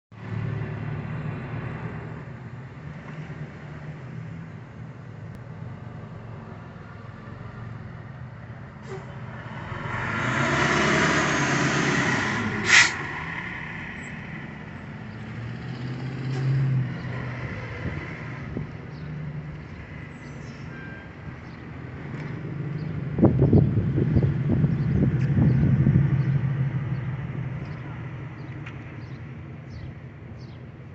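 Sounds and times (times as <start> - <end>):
rushing swell: 9.2 - 14.7
air brake hiss: 12.6 - 13.1.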